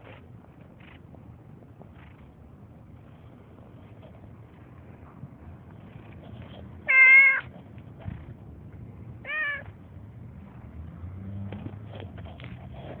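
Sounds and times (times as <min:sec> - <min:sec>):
cat meowing: 0:06.8 - 0:07.5, 0:09.2 - 0:09.7.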